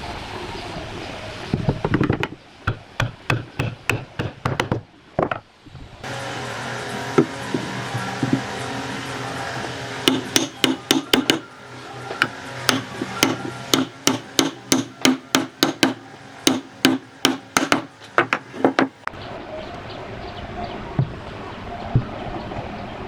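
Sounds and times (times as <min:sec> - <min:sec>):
hammer blows on wood: 0:10.0 - 0:11.5, 0:12.2 - 0:18.9.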